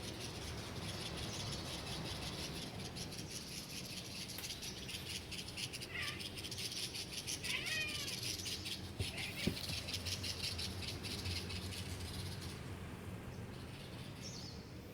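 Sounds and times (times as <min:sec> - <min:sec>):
cat chirping: 0:05.8 - 0:06.4, 0:07.3 - 0:10.3.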